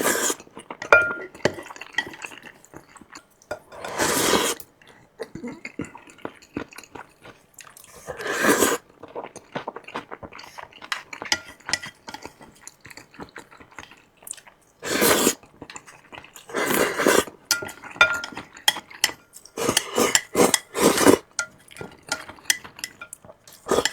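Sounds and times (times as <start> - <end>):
utensils clinking against dishes: 0.8 - 2.4, 10.9 - 12.4, 17.0 - 23.9.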